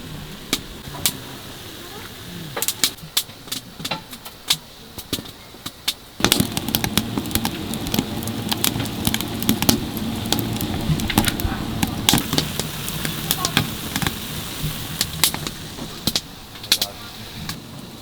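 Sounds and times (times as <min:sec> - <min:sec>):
wood stove fire crackling: 0:05.1 - 0:18.0
low mechanical rumble: 0:06.2 - 0:17.4.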